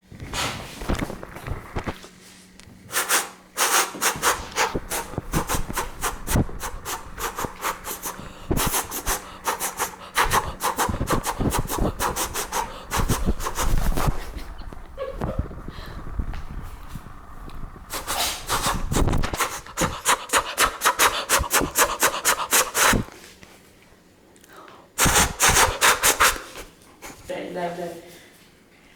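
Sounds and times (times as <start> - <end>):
person hissing: 2.9 - 14.2, 17.9 - 23.1, 25.0 - 27.2.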